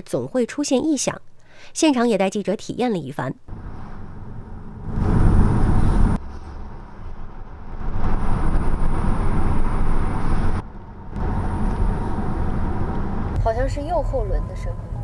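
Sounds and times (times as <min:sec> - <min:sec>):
car road and tyre noise: 0:03.5 - 0:15.0.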